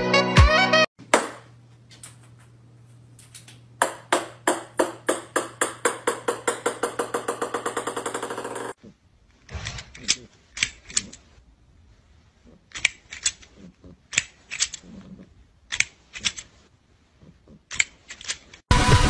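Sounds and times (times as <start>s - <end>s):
ball bouncing on wooden floor: 1.1s - 1.5s, 3.8s - 8.8s.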